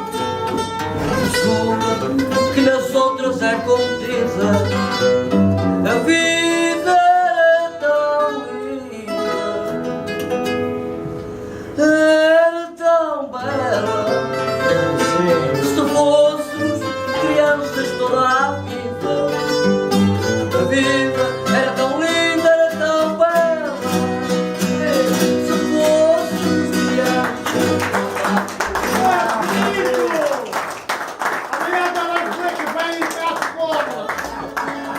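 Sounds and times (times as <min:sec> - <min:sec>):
plucked guitar melody: 0:00.0 - 0:11.6, 0:13.4 - 0:29.1
guitar strumming chords: 0:00.0 - 0:11.8, 0:13.4 - 0:29.9.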